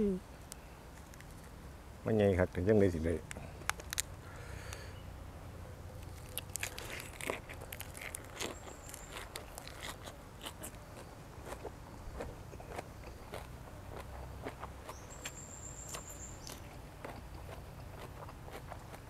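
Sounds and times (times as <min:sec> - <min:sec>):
person chewing and crunching food: 0:06.0 - 0:19.0.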